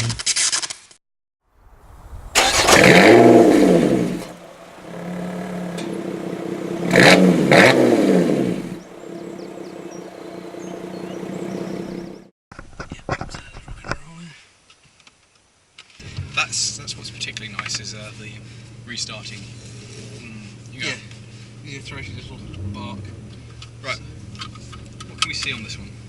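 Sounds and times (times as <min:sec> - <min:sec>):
car engine starting and idling: 0:02.1 - 0:12.3, 0:17.1 - 0:26.0.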